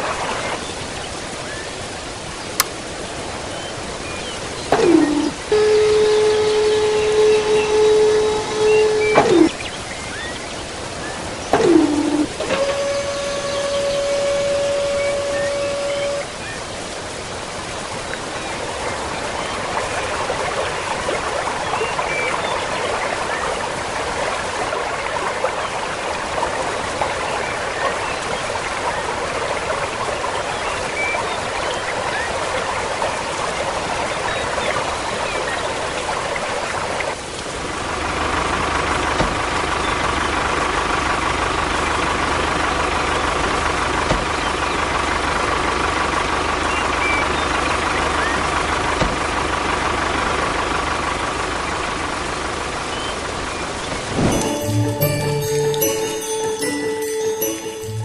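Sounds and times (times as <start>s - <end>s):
small motor whining: 11.6s - 16.2s.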